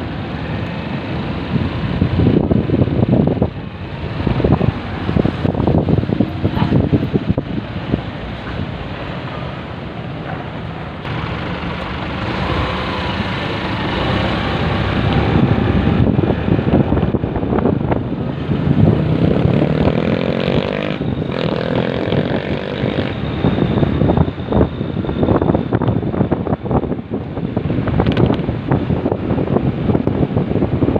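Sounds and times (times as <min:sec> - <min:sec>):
wind buffeting microphone: 0:00.0 - 0:09.0, 0:12.1 - 0:30.9
motorcycle engine: 0:11.0 - 0:25.9.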